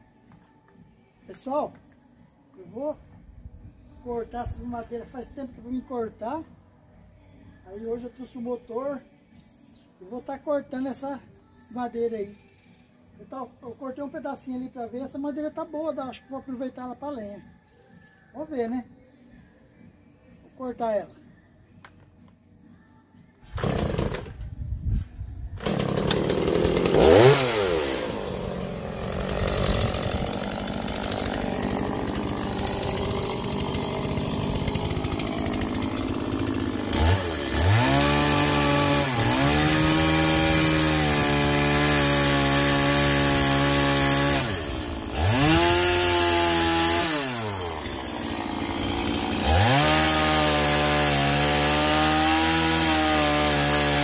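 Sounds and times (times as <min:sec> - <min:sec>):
chainsaw cutting log: 0:23.5 - 0:24.4, 0:25.6 - 0:54.0.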